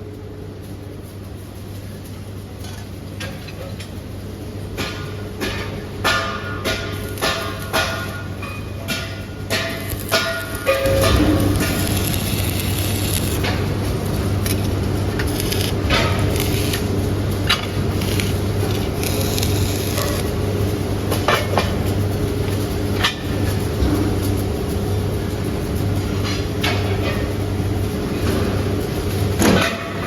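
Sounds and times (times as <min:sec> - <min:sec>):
machinery humming: 0:00.0 - 0:30.0
metal clanks and knocks: 0:04.7 - 0:20.4.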